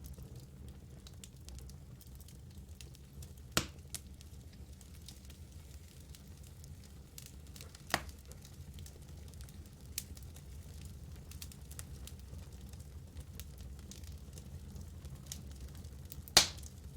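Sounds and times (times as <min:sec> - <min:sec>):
fire crackling and popping: 0:00.0 - 0:16.9
fire low rumble: 0:00.0 - 0:16.9.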